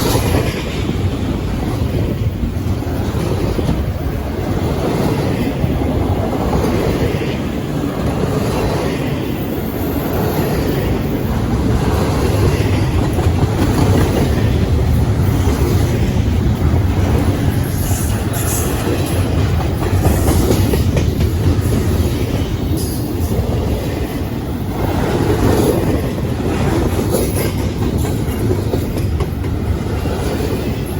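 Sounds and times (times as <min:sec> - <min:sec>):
freight train rumble: 0:00.0 - 0:30.9
wheels clattering over rail joints: 0:10.2 - 0:30.9.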